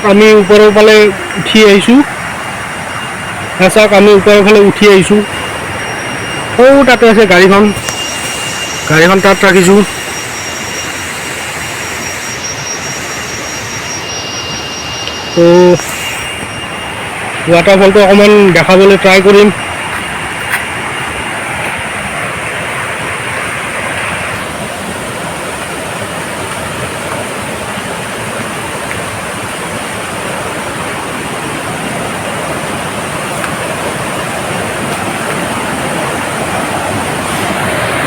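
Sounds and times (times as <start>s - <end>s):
waterfall pouring: 0.0s - 13.8s.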